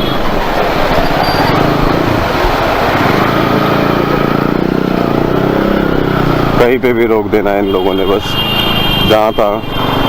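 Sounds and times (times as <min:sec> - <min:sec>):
road noise: 0:00.0 - 0:10.0
motorcycle engine running: 0:00.5 - 0:07.7.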